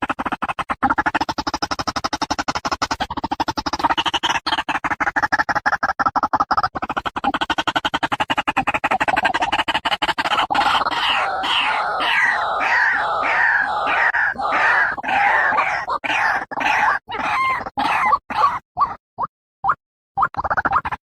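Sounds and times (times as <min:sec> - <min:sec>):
waterhen harsh calls: 0:09.0 - 0:19.0.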